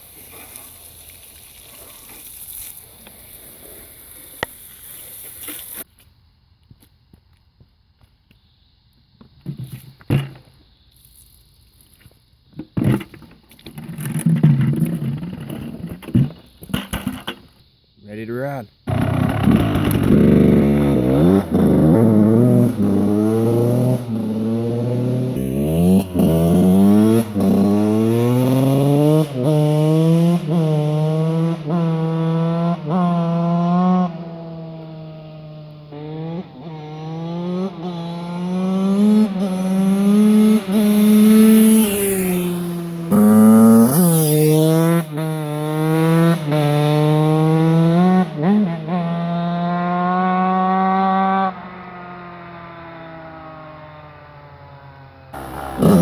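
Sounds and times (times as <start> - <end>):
dirt bike engine revving: 18.9 - 51.7, 55.4 - 56.0.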